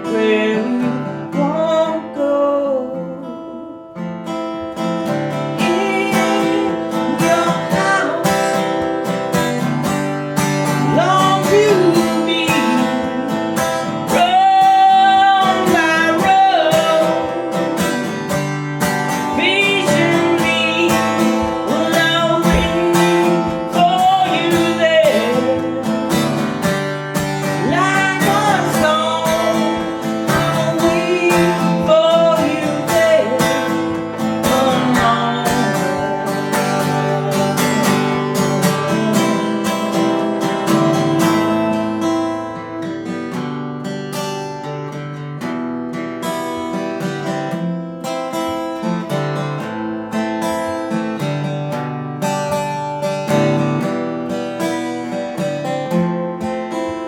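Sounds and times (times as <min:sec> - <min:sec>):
person singing: 0:00.0 - 0:42.3
acoustic guitar strumming: 0:00.0 - 0:57.0.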